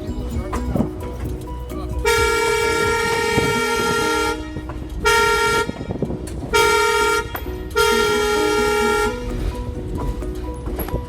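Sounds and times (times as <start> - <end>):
train horn blasts: 2.0 - 9.3.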